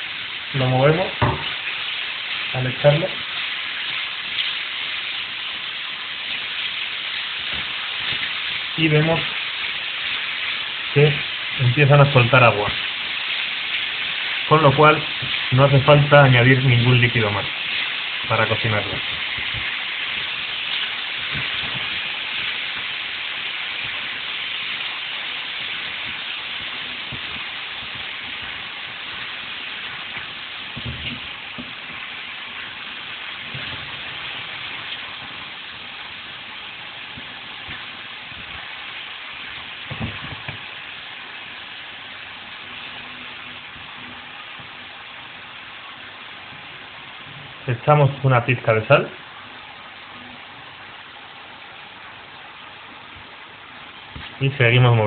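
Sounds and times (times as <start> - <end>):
mushrooms sizzling in a pan: 0.0 - 55.0
wooden spatula knocking on pan: 1.2 - 1.5.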